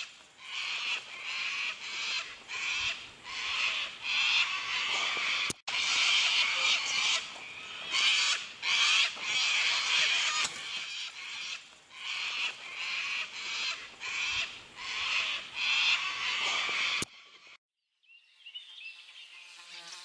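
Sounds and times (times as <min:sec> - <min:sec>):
harsh rasping bird calls: 0:00.0 - 0:17.6.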